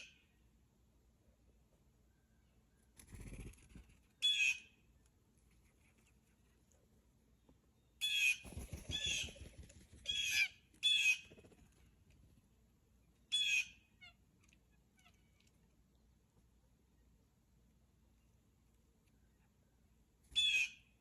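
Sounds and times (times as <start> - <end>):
blue jay harsh jeer calls: 4.2 - 4.7, 10.1 - 11.3, 13.3 - 14.2, 20.4 - 20.9.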